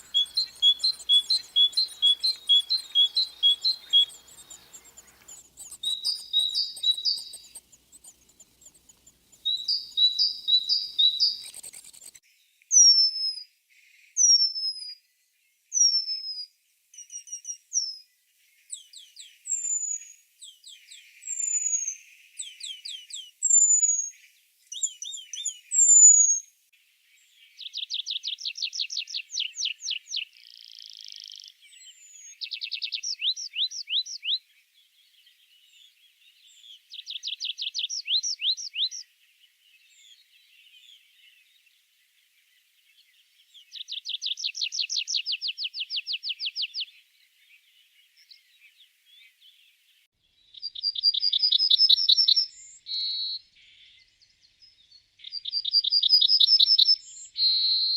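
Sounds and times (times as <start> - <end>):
songbird trilling: 0.0 - 12.2, 50.6 - 53.4, 55.2 - 57.9.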